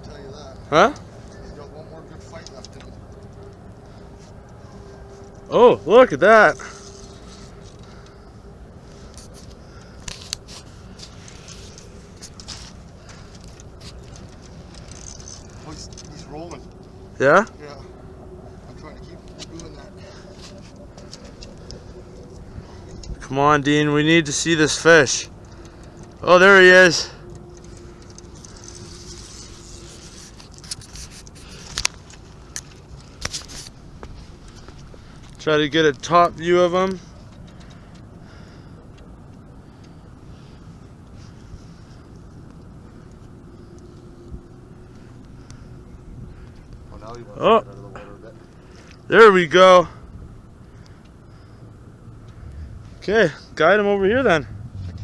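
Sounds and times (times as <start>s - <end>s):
low outdoor rumble: 0.0s - 55.0s
small clicks and scrapes: 2.2s - 5.5s, 6.6s - 17.1s, 27.2s - 35.4s
light scrapes: 27.6s - 32.0s.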